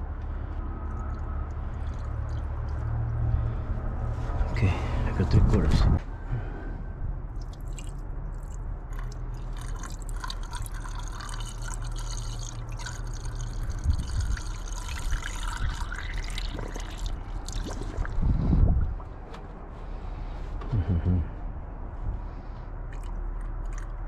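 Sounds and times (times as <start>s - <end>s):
low hum: 0.0s - 24.0s
water pouring and trickling: 0.4s - 3.6s, 7.3s - 19.1s, 22.9s - 24.0s.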